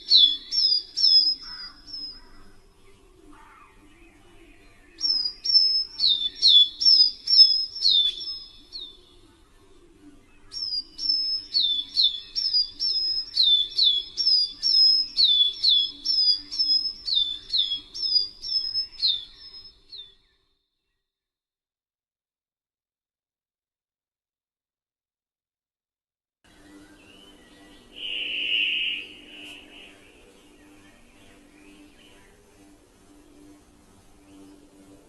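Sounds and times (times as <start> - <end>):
songbird two-note call: 27.9 - 30.1.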